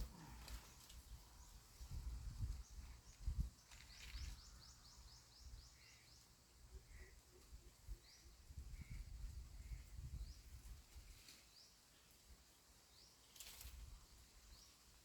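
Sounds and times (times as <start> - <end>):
wind rumbling on microphone: 0.0 - 4.7, 7.8 - 11.2
bird chirping: 2.6 - 7.2.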